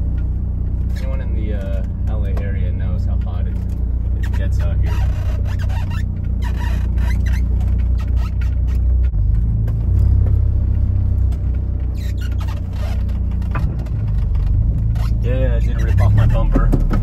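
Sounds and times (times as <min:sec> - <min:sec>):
car engine droning inside cabin: 0:00.0 - 0:17.0.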